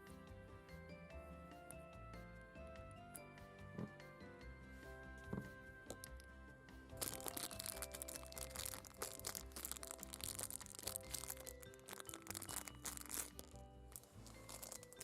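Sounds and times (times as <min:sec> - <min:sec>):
soft background music: 0:00.0 - 0:15.0
plastic packaging crinkling: 0:05.9 - 0:06.2, 0:07.0 - 0:15.0.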